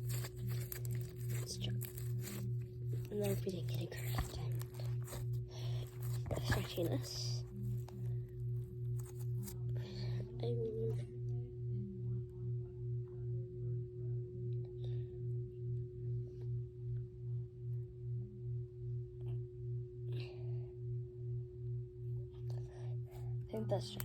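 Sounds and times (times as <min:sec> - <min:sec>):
slime squishing: 0:00.0 - 0:09.6
pulsing low hum: 0:00.0 - 0:24.0.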